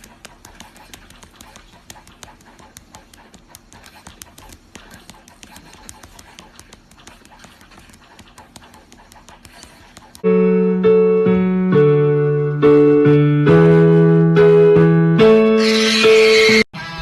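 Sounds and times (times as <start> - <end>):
electric piano chords: 10.2 - 16.2.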